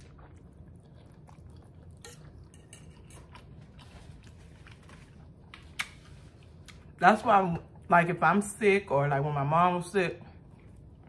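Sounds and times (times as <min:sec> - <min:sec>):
person chewing quietly: 0:00.0 - 0:07.0, 0:07.6 - 0:08.0, 0:10.2 - 0:11.0.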